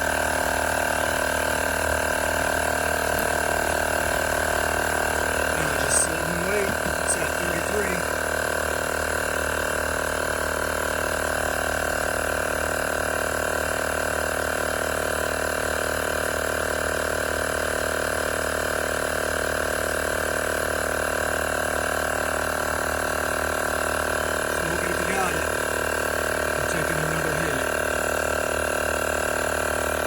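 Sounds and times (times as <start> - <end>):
small compressor buzzing: 0.0 - 13.0, 20.8 - 30.0.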